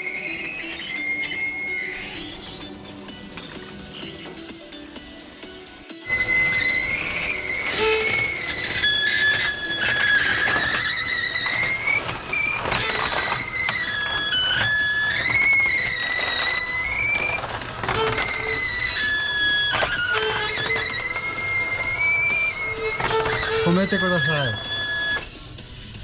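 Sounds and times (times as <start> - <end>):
roller shutter high squeal: 0.0 - 26.0
slats clicking: 6.1 - 25.3.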